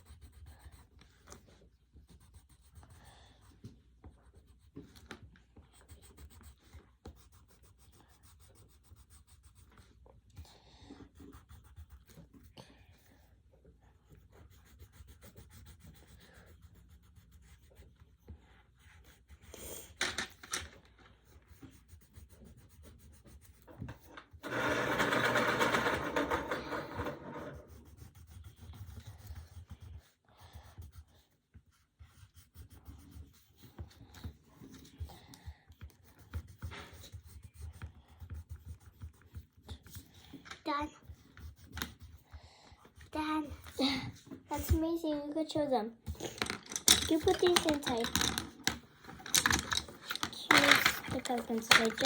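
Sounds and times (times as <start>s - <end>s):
coloured pencil scribbling on paper: 0.0s - 20.0s, 21.0s - 46.3s, 50.0s - 52.0s.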